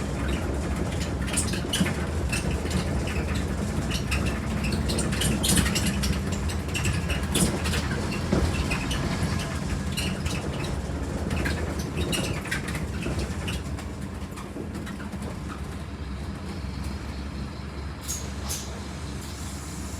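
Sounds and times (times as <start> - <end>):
bus diesel engine humming: 0.0 - 19.9
bodywork rattles and clicks: 0.2 - 17.2.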